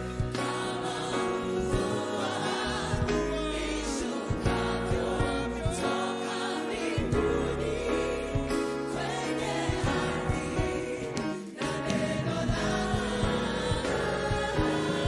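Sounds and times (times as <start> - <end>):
band playing: 0.0 - 15.0
voices singing: 0.0 - 15.0
drum hits: 1.6 - 6.1, 6.9 - 15.0.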